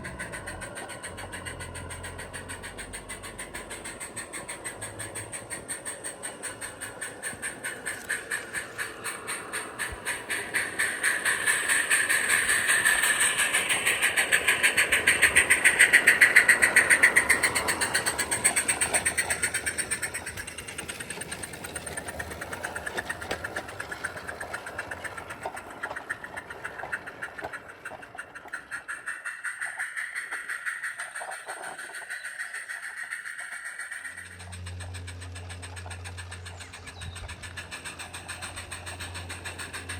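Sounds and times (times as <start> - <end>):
steam locomotive exhaust beats: 0.0 - 39.9
steam hiss: 4.6 - 27.6.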